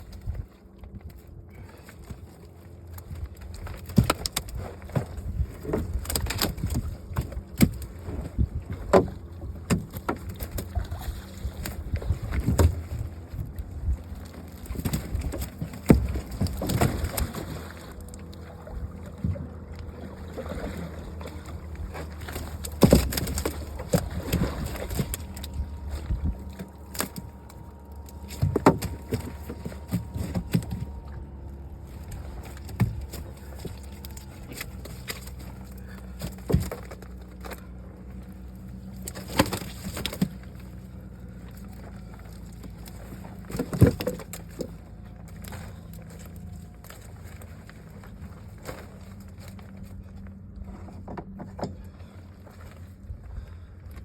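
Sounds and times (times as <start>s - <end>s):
knocks and thumps on boat: 0.0s - 54.0s
low hum: 0.0s - 54.0s
water sloshing: 0.0s - 54.0s.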